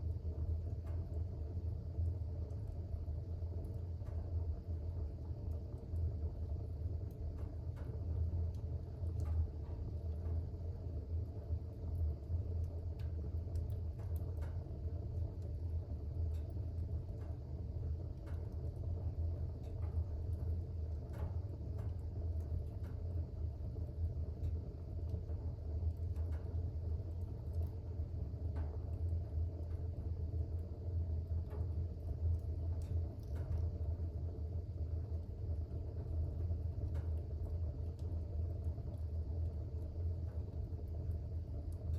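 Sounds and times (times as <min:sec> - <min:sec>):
fire crackles and pops: 0:00.0 - 0:41.9
wood fire rumbling: 0:00.0 - 0:41.9.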